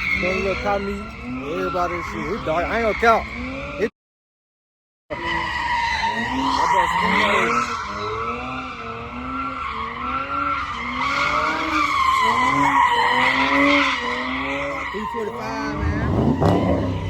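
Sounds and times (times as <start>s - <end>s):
tire squeal: 0.0s - 3.9s, 5.1s - 17.0s
car engine revving: 5.1s - 17.0s.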